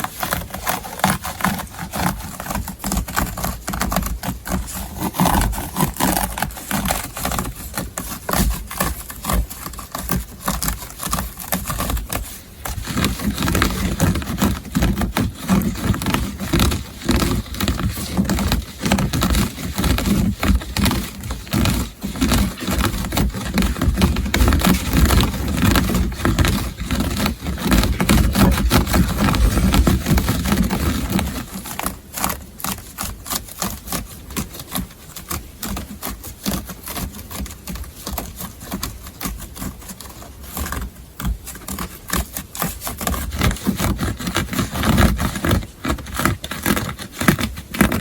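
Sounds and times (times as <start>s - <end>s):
scratching on fabric: 0.0s - 48.0s.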